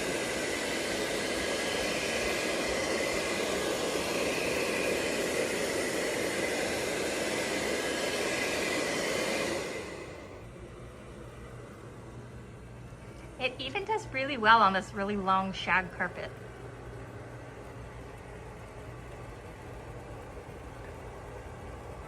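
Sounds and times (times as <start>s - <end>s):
suction and brushes on carpet: 0.0s - 10.2s.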